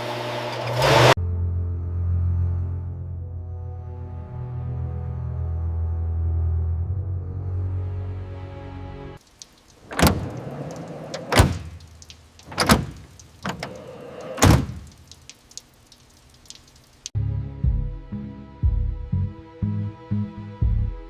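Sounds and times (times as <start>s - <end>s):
music: 1.2s - 9.2s, 17.2s - 21.0s.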